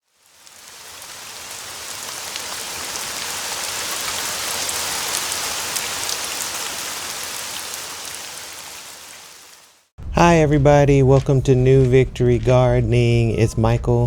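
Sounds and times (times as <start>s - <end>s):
rain drops ticking on hard surface: 0.0s - 9.9s.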